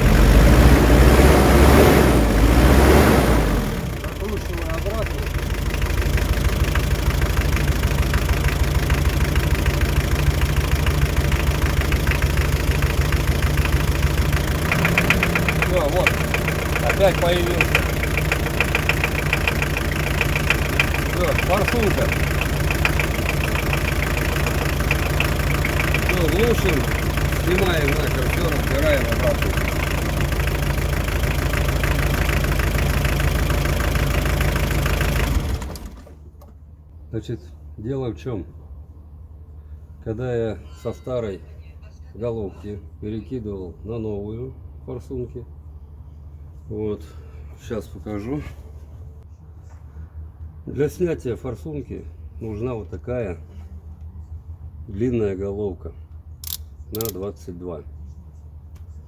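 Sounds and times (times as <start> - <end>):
diesel engine idling with knock: 0.0 - 37.0, 45.5 - 51.0, 56.0 - 57.2.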